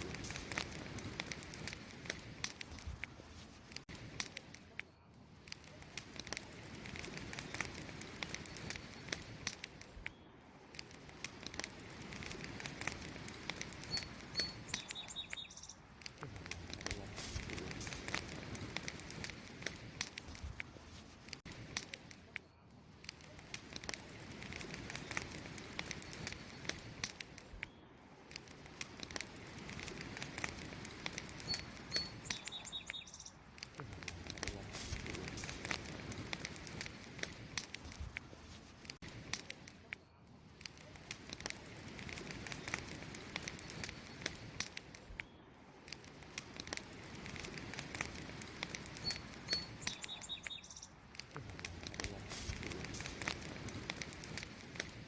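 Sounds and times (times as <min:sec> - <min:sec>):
campfire crackling and popping: 0:00.0 - 0:55.0
bird chirping: 0:13.8 - 0:15.9, 0:31.4 - 0:33.4, 0:49.0 - 0:51.0.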